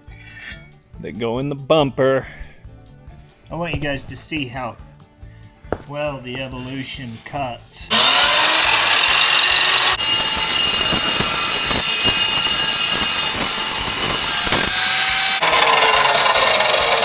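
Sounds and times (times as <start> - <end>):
power saw cutting metal: 7.9 - 17.0.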